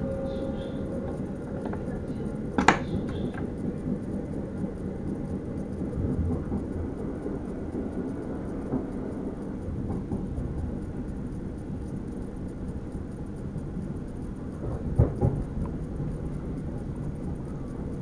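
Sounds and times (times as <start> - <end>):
train running low rumble: 0.0 - 18.0.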